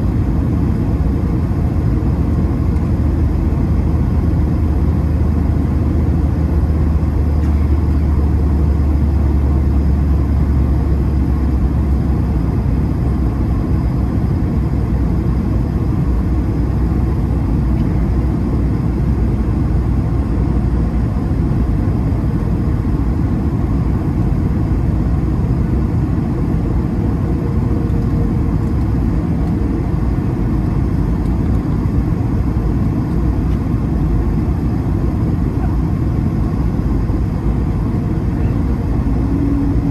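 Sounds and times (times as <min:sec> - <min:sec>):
jet engines humming: 0:00.0 - 0:39.9
rush of air in aircraft cabin: 0:00.0 - 0:39.9
deep low rumble: 0:25.0 - 0:39.9.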